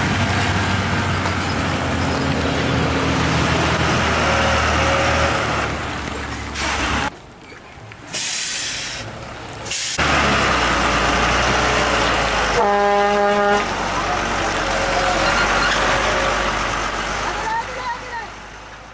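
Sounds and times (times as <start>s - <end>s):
heavy truck engine labouring: 0.0s - 7.1s, 8.1s - 18.9s
brief hiss: 8.1s - 9.1s
vehicle horn: 12.6s - 13.7s.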